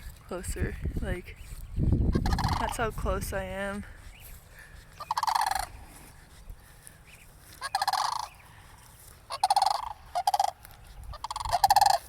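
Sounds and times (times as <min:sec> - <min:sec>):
cranes calling: 0:02.1 - 0:02.9, 0:03.9 - 0:12.0.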